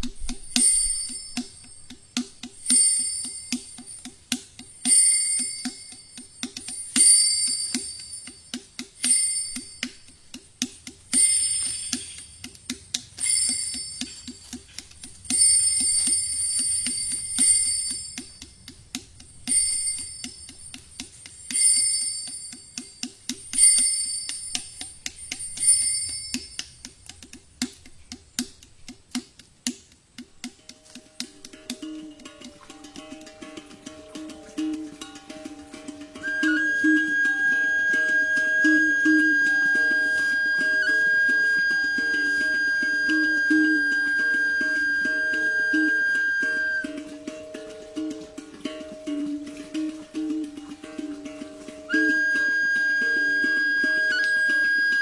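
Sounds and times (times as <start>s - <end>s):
small high-pitched metal bell: 0.4s - 1.9s, 2.6s - 10.2s, 11.1s - 12.4s, 13.2s - 14.5s, 15.3s - 18.6s, 19.4s - 26.8s.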